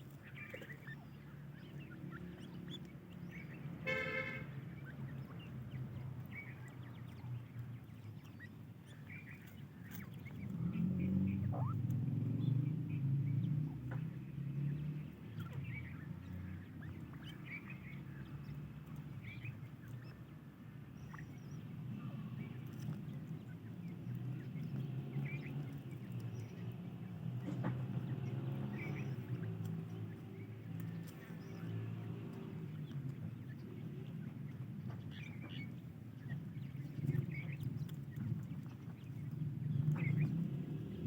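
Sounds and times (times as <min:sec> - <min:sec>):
chicks peeping: 0:00.0 - 0:41.0
low steady rumble: 0:00.0 - 0:41.0
loud buzzy call: 0:03.8 - 0:04.5.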